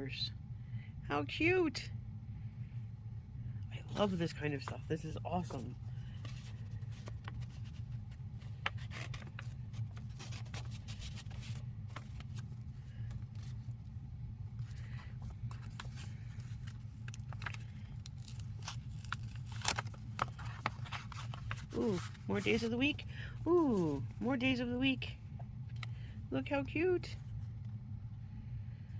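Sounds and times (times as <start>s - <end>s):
steady low hum: 0.0s - 28.9s
paper rustling and crinkling: 3.8s - 13.8s, 14.6s - 23.0s.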